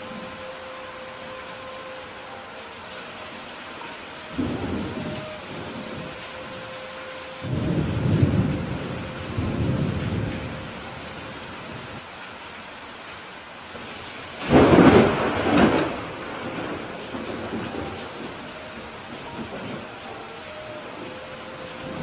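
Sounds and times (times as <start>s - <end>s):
steady rain: 0.0s - 22.0s
thunder rumbling and cracking: 14.4s - 20.0s.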